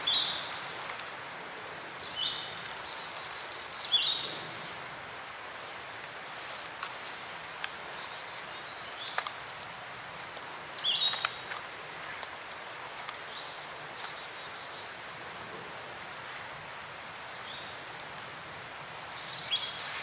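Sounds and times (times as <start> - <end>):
light clicks and ticks: 0.4 - 1.2, 2.3 - 3.9, 6.0 - 14.2.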